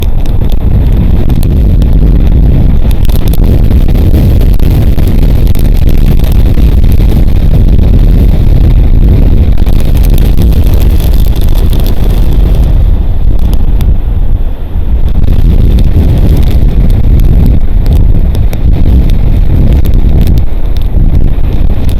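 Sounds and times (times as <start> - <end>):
wind buffeting microphone: 0.0 - 21.9
faint ticks: 15.0 - 21.9.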